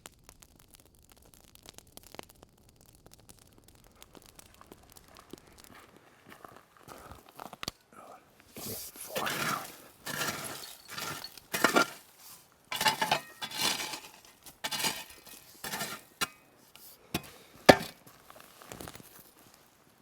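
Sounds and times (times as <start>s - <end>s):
cutlery scraping on a plate: 9.2s - 12.0s, 12.7s - 16.4s, 17.2s - 18.0s.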